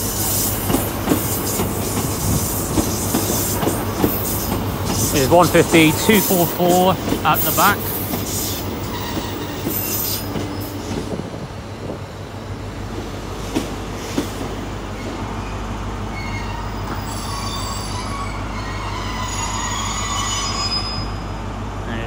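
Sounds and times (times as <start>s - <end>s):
steel wheel squeal: 1.3s - 11.0s, 16.1s - 21.3s.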